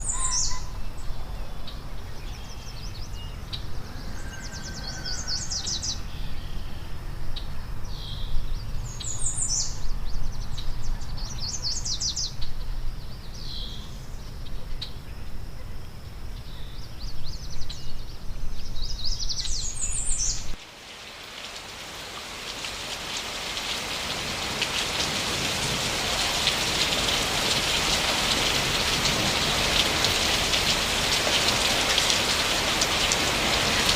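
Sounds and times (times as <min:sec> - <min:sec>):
short bird calls: 0:00.0 - 0:00.8
steady rain: 0:00.0 - 0:06.3, 0:19.5 - 0:33.9.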